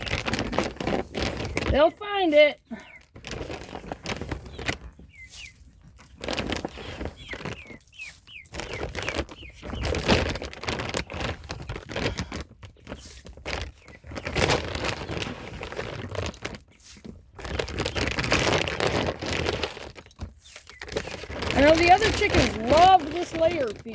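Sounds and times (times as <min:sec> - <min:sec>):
bag rustling and crinkling: 0:00.0 - 0:23.9
chicks peeping: 0:04.4 - 0:10.3.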